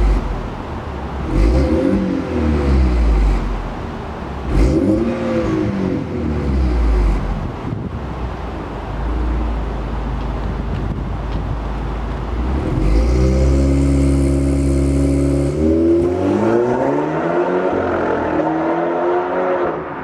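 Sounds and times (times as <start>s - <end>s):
car exhaust drone: 0.0s - 20.0s
engine revving higher: 1.2s - 3.8s, 4.4s - 7.6s, 12.4s - 20.0s.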